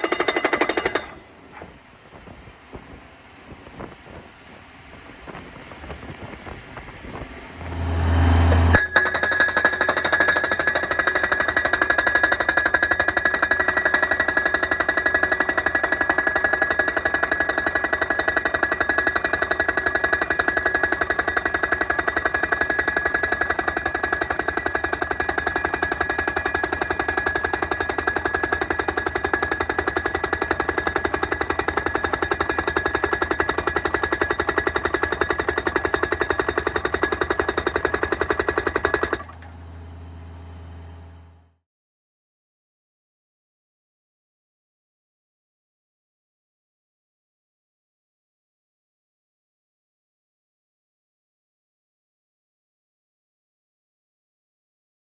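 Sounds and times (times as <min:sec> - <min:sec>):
pile driver pounding steel: 0:00.0 - 0:01.8, 0:07.5 - 0:39.5.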